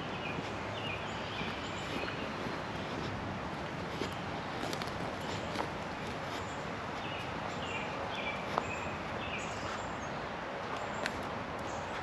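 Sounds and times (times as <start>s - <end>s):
birds whistling calls: 0.0s - 2.6s, 6.3s - 10.2s
steady outdoor hiss: 0.0s - 12.0s.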